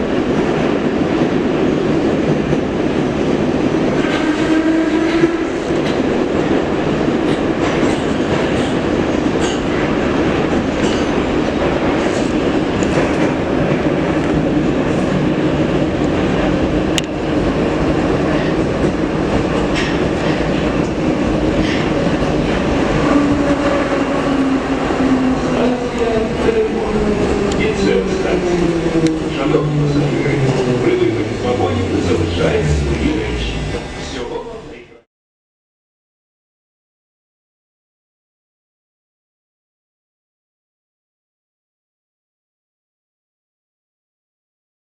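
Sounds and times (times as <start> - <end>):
train rumbling in tunnel: 0.0 - 35.1.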